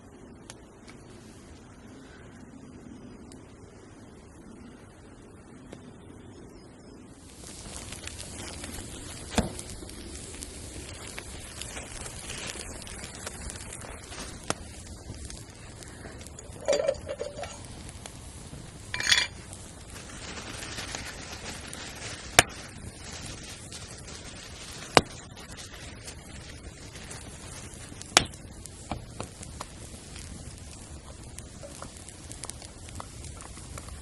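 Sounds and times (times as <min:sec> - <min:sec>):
steady background hiss: 0:00.0 - 0:34.0
metal cookware clinking: 0:16.6 - 0:17.6.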